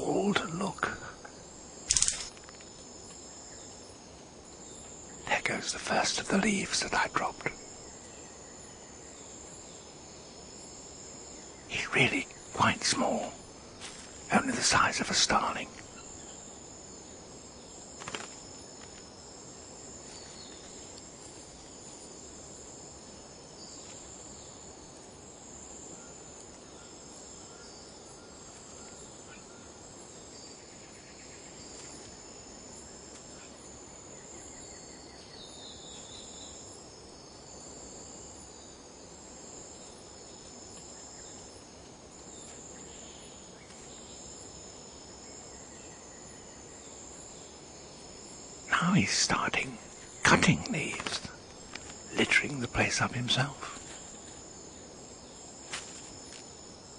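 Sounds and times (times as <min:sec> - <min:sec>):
insects buzzing drone: 0:00.0 - 0:56.9
faint chirps: 0:11.3 - 0:19.0, 0:42.4 - 0:55.5.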